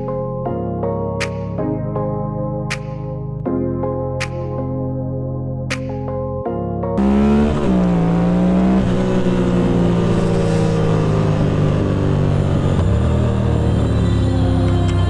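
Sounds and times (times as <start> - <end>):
motorcycle engine revving: 7.0 - 15.0.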